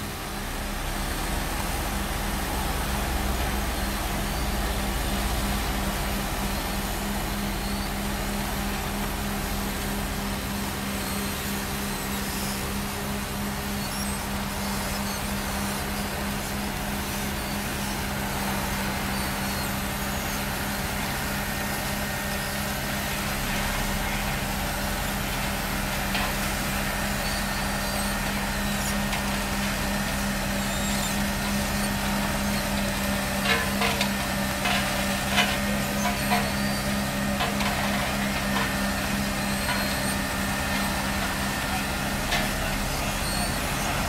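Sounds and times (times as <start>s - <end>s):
diesel paving machinery running: 0.0s - 44.0s.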